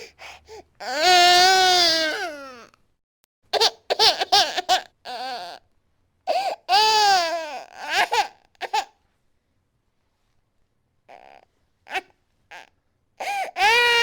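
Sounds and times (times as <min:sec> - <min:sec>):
baby crying: 0:00.8 - 0:02.7, 0:03.6 - 0:05.6, 0:06.3 - 0:09.0, 0:11.1 - 0:14.0.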